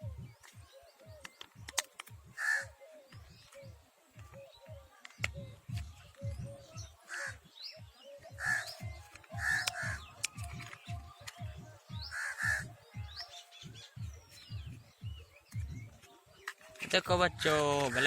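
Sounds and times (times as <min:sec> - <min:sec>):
background music with low beat: 0:00.0 - 0:18.0
crows cawing: 0:02.4 - 0:02.8, 0:07.1 - 0:07.4, 0:08.4 - 0:08.7, 0:09.4 - 0:10.0, 0:12.1 - 0:12.7, 0:17.8 - 0:18.0.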